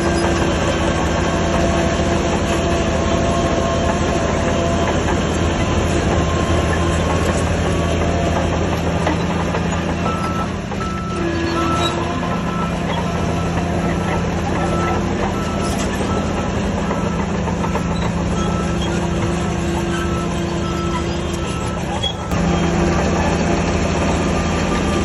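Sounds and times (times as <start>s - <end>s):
heavy diesel machinery running: 0.0s - 25.0s
reversing alarm beeping: 9.0s - 22.6s.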